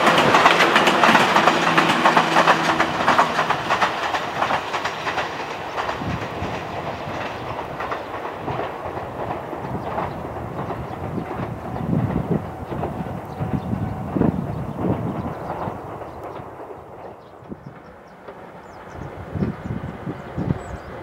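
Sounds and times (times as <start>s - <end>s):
loud rolling rumble with clattering: 0.0s - 21.0s.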